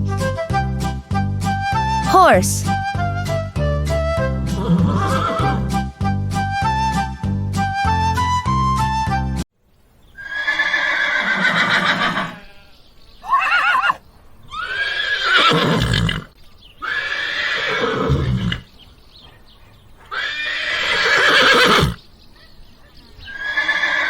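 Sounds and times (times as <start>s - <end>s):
horse whinnying: 4.4s - 5.8s, 10.2s - 18.7s, 20.1s - 22.0s, 23.3s - 24.0s.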